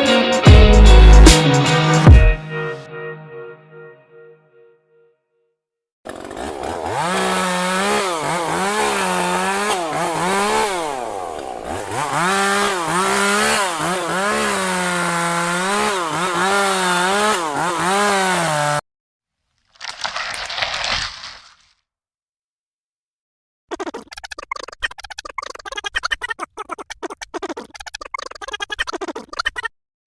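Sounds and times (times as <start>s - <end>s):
chainsaw cutting wood: 6.0s - 18.8s, 19.6s - 21.8s.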